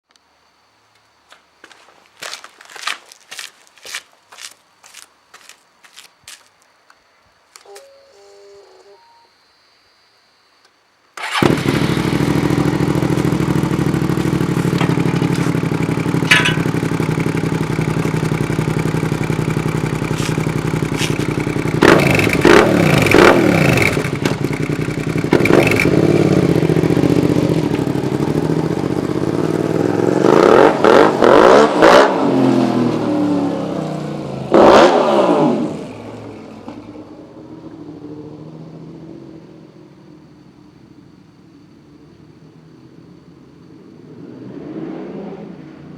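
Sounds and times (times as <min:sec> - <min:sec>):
motorcycle engine idling and revving: 0:11.2 - 0:45.9.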